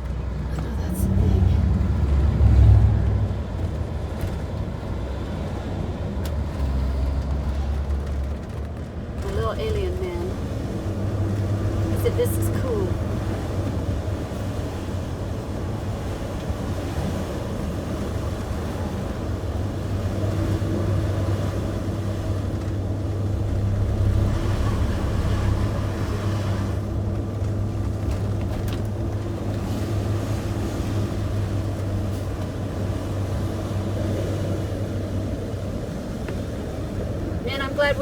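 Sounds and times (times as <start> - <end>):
motorhome engine and road noise: 0.0 - 38.0.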